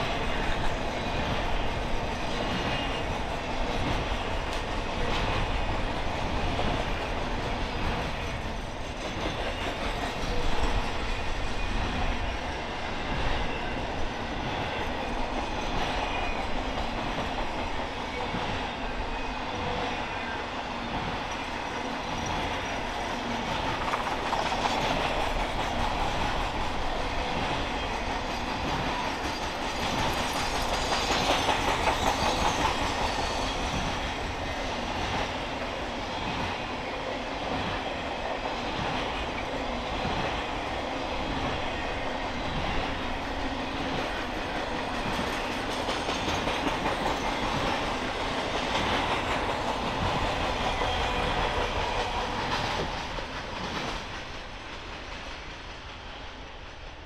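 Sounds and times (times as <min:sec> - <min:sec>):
freight train rolling past: 0:00.0 - 0:57.0
wheels clicking over rail joints: 0:21.2 - 0:34.4, 0:43.9 - 0:55.2.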